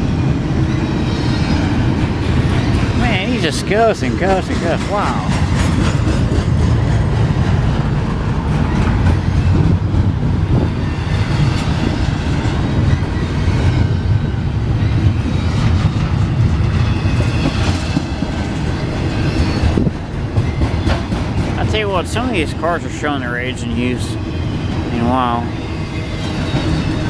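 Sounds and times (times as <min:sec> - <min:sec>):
wheels clicking over rail joints: 0:00.0 - 0:22.3
freight train rumbling: 0:00.0 - 0:27.0.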